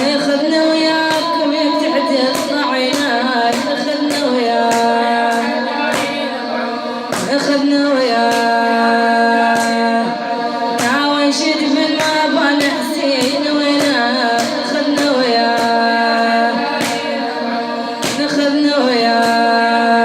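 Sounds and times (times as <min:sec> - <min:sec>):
woman singing a lament: 0:00.0 - 0:20.0
steady percussive beat: 0:01.0 - 0:06.4, 0:07.1 - 0:08.7, 0:10.8 - 0:19.6.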